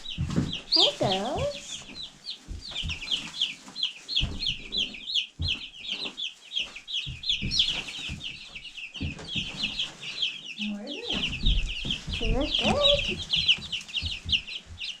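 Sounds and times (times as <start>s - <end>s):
chicks peeping: 0.0s - 15.0s
soft low thumps: 10.6s - 15.0s.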